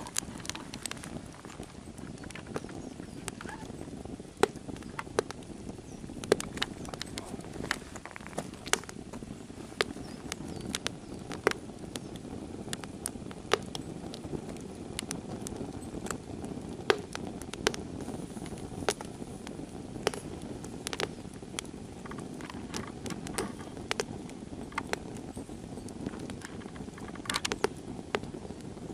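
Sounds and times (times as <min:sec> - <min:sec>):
log fire crackling and popping: 0:00.0 - 0:28.9.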